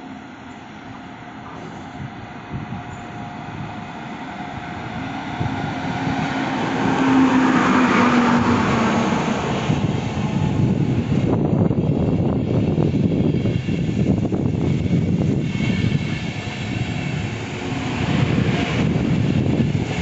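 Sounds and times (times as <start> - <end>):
electric locomotive humming: 0.0 - 20.0.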